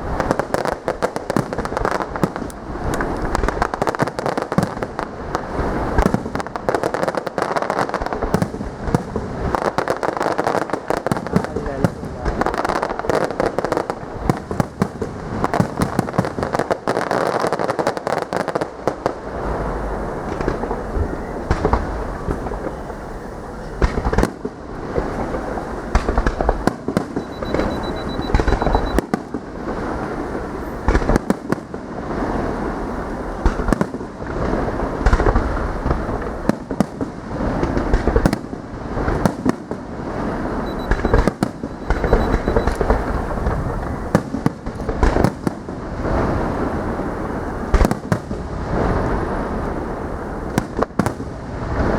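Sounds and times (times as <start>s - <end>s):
firework bangs and crackling: 0.0s - 51.9s
low booms of shell bursts: 18.4s - 51.9s.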